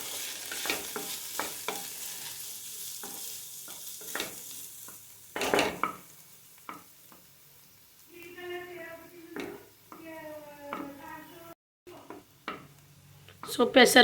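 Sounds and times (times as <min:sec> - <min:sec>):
food sizzling in a pan: 0:00.0 - 0:14.0
utensil scraping and clicking on pan: 0:00.1 - 0:07.2.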